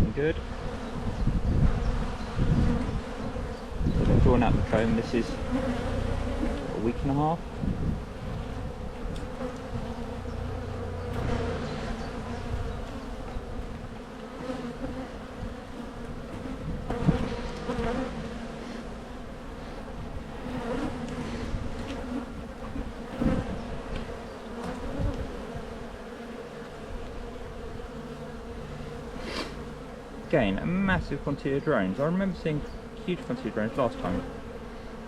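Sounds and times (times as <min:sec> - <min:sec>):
honey bees buzzing: 0:00.0 - 0:35.0.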